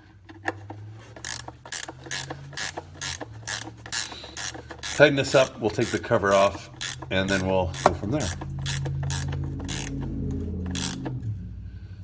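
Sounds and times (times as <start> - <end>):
socket ratchet clicking: 0.5 - 11.2
low steady hum: 6.5 - 12.0.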